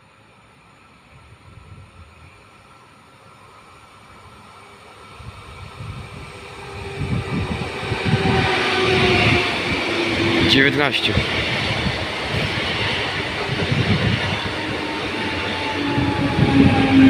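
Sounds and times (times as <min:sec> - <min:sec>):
train hum: 0:00.0 - 0:17.0
train wheel and running noise: 0:00.0 - 0:17.0.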